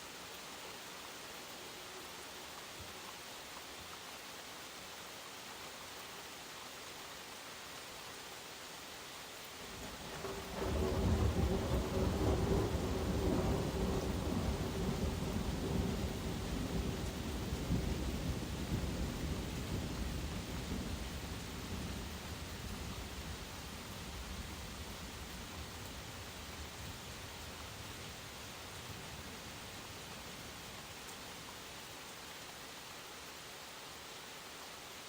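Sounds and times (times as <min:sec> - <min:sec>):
rain hiss: 0:00.0 - 0:35.0
thunder rumbling: 0:09.7 - 0:30.9.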